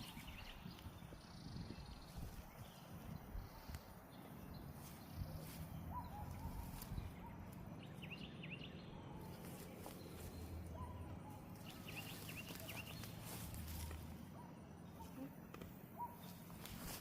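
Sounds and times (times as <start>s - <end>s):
small bird chirps: 0.0s - 14.2s.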